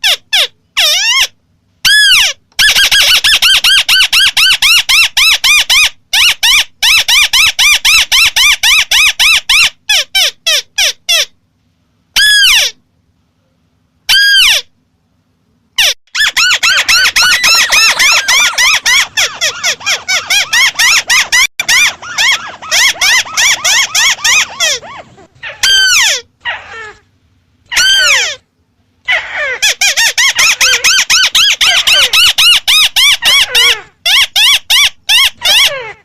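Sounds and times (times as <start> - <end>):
crake chattering call: 16.2 - 25.2.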